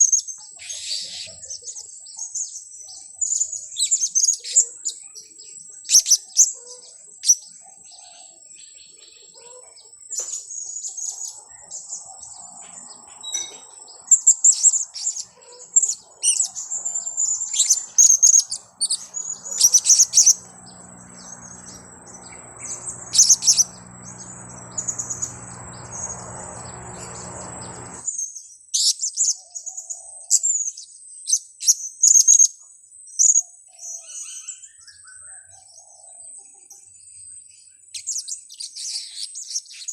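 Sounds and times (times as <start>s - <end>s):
parrots chirping: 13.2s - 28.1s
steady high whine: 16.5s - 28.1s
low hum: 16.6s - 28.1s.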